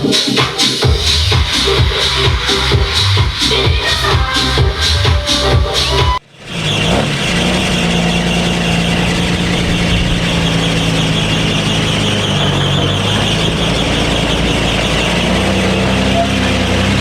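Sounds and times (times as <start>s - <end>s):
vehicle engine running: 0.8s - 17.0s.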